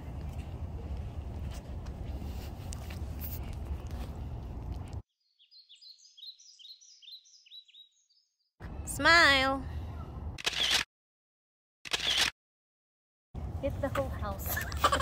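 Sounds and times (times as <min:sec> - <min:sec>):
low outdoor rumble: 0:00.0 - 0:05.0
songbird chirping: 0:05.1 - 0:09.2.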